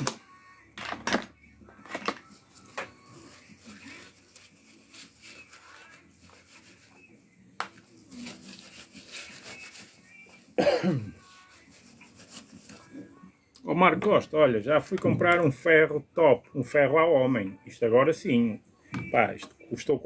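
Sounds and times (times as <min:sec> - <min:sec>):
person coughing: 0:10.6 - 0:11.2.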